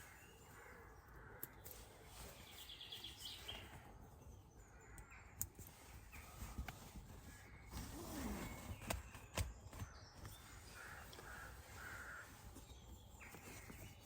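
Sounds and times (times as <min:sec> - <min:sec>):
faint bird calls: 0:04.6 - 0:14.0.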